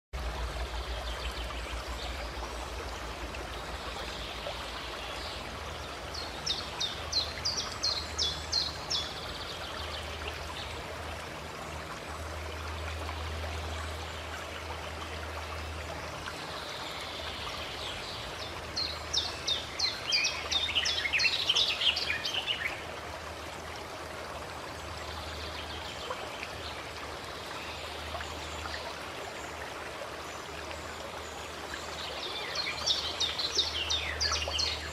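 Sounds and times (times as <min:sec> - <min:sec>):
flowing stream: 0:00.2 - 0:34.9.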